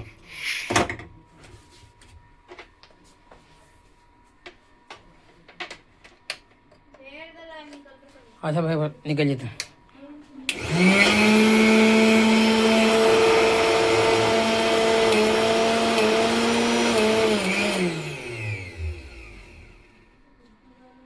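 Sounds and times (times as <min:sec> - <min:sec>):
electric appliance motor whining: 0:10.5 - 0:20.2.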